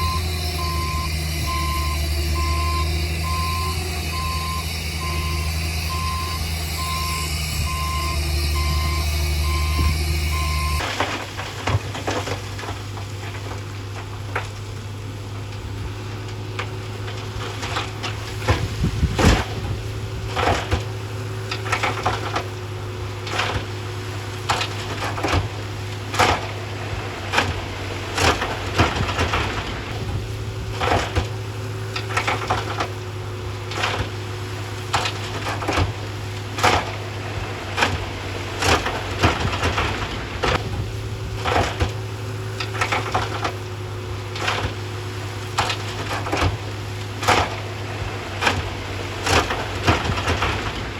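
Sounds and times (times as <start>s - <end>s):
diesel engine droning: 0.0s - 50.9s
crunching knocks of rock: 16.3s - 50.9s.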